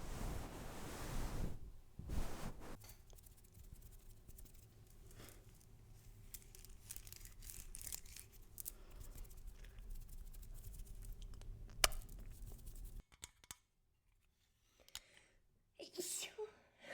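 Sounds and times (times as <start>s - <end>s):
soft scratching and crackling: 0.0s - 13.0s.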